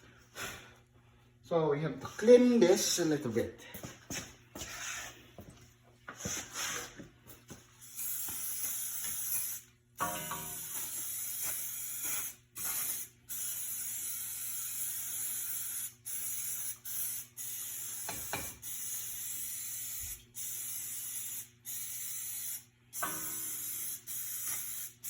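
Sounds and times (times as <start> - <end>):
aerosol spray hissing: 10.6 - 25.0.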